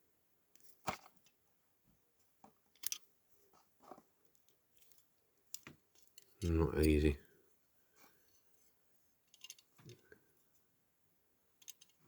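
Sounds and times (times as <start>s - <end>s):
toy car clicks and taps: 9.3s - 9.6s, 11.6s - 12.0s.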